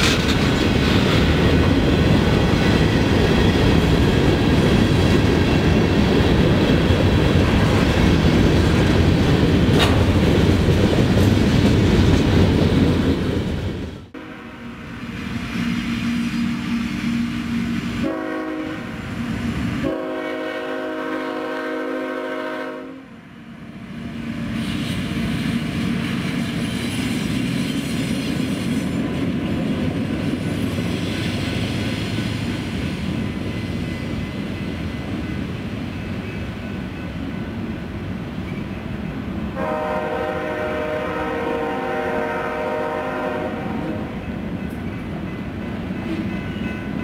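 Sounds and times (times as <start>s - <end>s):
freight train rumble: 0.0s - 47.0s
train air horn blasts: 14.1s - 14.9s, 15.5s - 23.2s, 39.6s - 44.2s.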